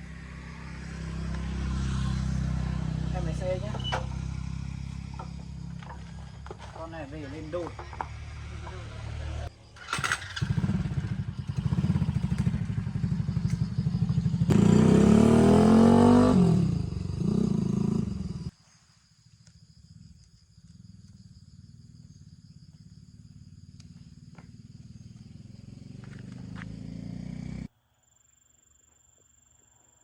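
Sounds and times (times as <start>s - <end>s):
motorcycle engine idling and revving: 0.0s - 18.6s, 19.7s - 27.7s.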